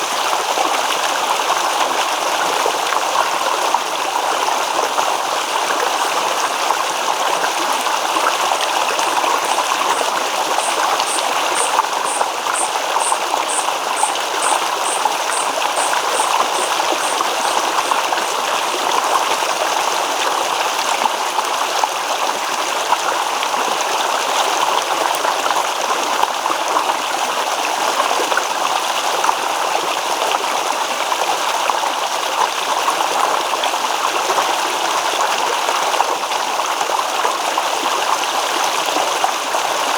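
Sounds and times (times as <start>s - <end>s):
babbling stream: 0.0s - 39.9s
faint high pulsing call: 8.4s - 18.9s.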